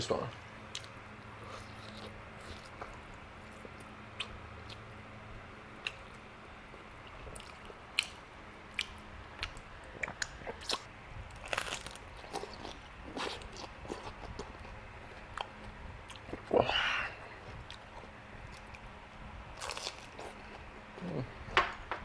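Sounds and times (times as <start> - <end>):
person chewing meat: 0.7 - 4.9, 5.8 - 18.9, 19.6 - 21.6.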